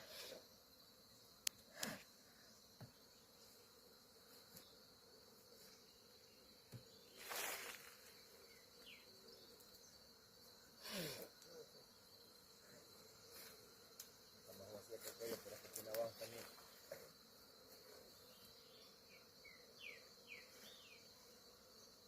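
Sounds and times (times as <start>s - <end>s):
insect buzzing passes: 0.0s - 22.0s
insect trilling: 5.6s - 17.3s.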